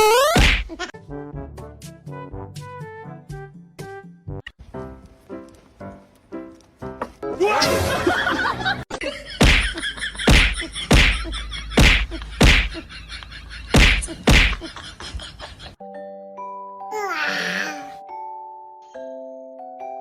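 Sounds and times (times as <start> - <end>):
sharp slaps: 0.3 - 0.7, 9.4 - 11.2, 11.8 - 12.8, 13.7 - 14.6.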